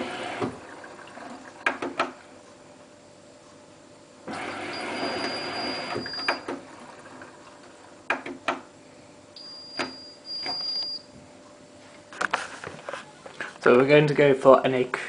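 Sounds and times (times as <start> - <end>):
high electronic beeps: 9.4 - 11.0.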